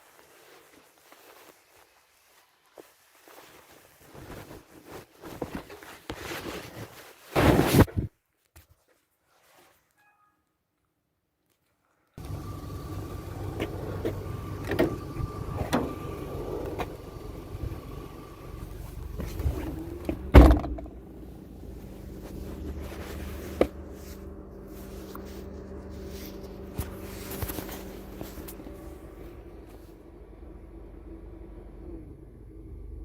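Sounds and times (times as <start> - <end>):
low steady hum: 12.2 - 33.0
car door thud: 14.6 - 17.0, 20.1 - 20.9.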